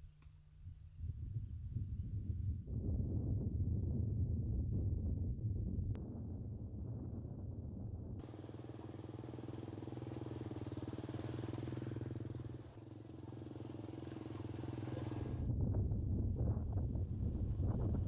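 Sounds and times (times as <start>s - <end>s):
wind rumble on microphone: 0.6s - 8.6s, 14.0s - 18.0s
small engine running: 8.2s - 15.5s.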